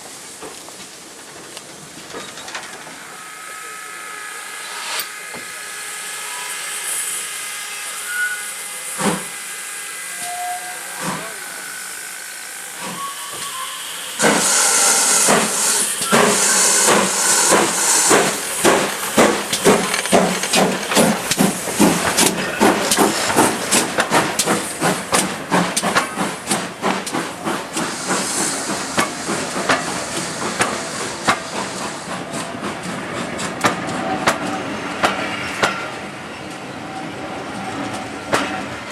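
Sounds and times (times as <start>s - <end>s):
steam locomotive hissing: 0.0s - 38.9s
loud burst of steam: 3.4s - 32.3s.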